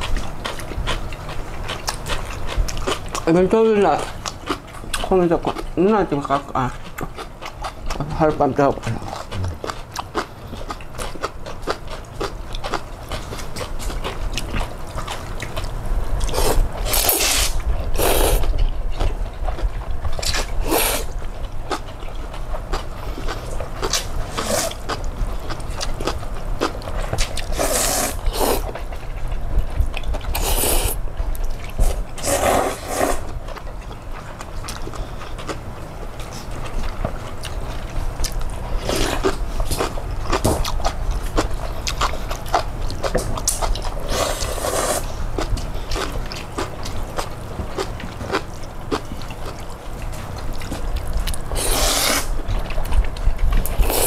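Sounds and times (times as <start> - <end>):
wet chewing: 0.0 - 54.0
slurping noodles: 16.3 - 18.5, 24.3 - 24.8, 27.5 - 28.7, 30.4 - 31.0, 32.2 - 33.3, 44.0 - 45.1, 51.5 - 52.4.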